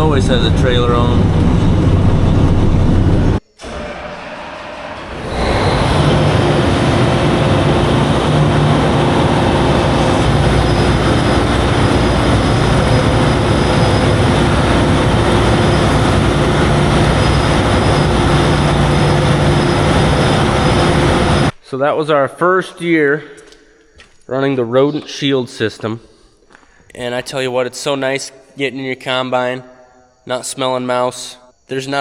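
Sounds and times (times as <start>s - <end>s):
heavy diesel engine running: 0.0s - 21.5s.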